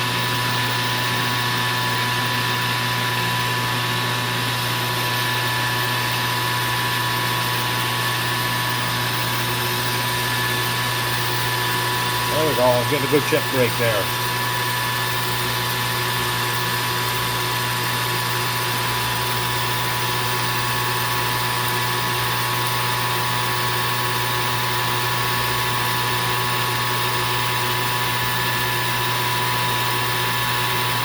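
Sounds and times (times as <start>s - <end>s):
metal lathe humming and whining: 0.0s - 26.3s.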